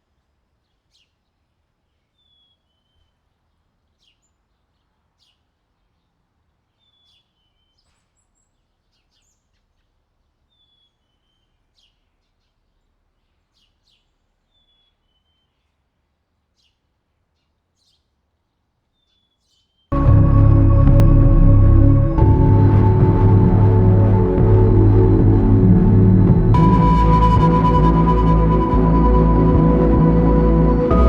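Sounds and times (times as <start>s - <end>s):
faint low rumble: 19.9s - 31.0s.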